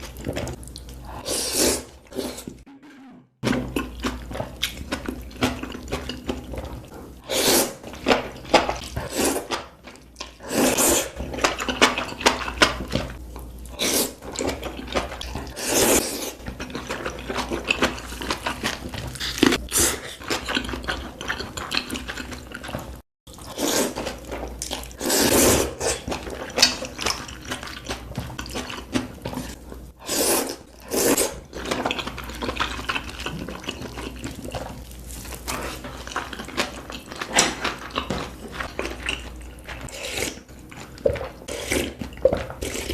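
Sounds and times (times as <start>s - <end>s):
chewing and slurping: 3.4s - 42.9s.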